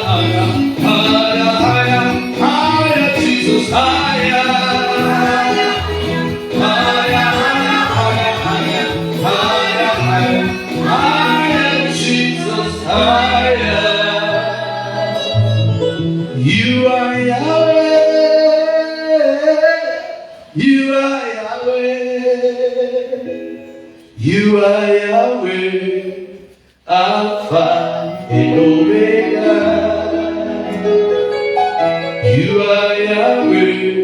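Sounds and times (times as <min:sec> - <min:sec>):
band playing: 0:00.0 - 0:18.4, 0:28.1 - 0:33.6
voices singing: 0:00.0 - 0:18.8, 0:25.7 - 0:34.0.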